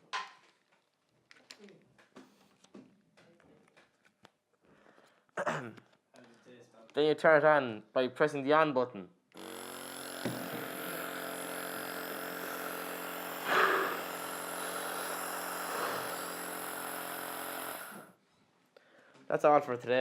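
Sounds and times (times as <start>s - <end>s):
nebuliser compressor buzzing: 9.4s - 18.1s.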